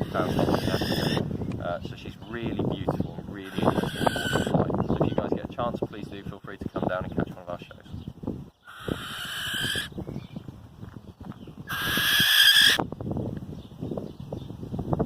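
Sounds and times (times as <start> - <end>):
barn owl screeching: 0.0 - 1.3, 3.4 - 5.3, 8.6 - 10.0, 11.6 - 12.8.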